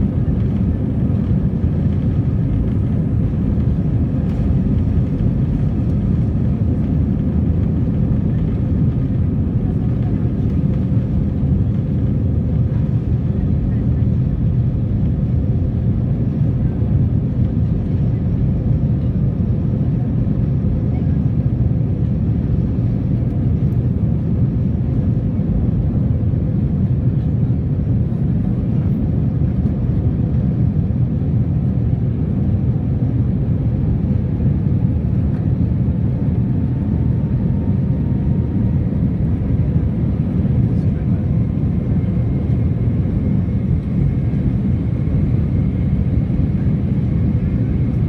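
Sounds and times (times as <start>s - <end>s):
jet engines rumbling: 0.0s - 48.0s.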